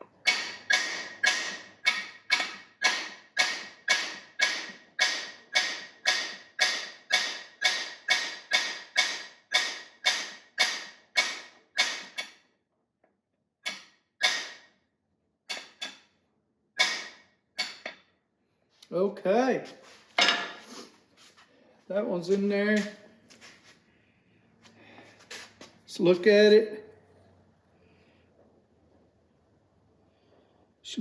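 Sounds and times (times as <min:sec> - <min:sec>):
hammer striking metal tool: 0:00.2 - 0:12.4, 0:13.7 - 0:14.7, 0:16.8 - 0:18.0.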